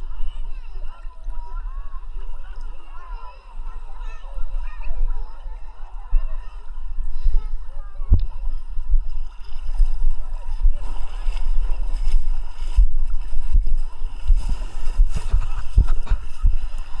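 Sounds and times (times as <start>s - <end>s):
sea water sloshing and splashing: 0.0s - 17.0s
water thumping against camera: 8.0s - 17.0s.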